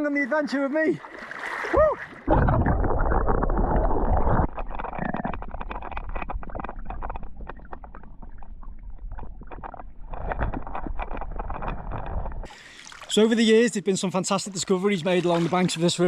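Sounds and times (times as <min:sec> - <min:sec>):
river water splashing: 0:00.7 - 0:04.7, 0:12.4 - 0:13.7, 0:14.3 - 0:16.0.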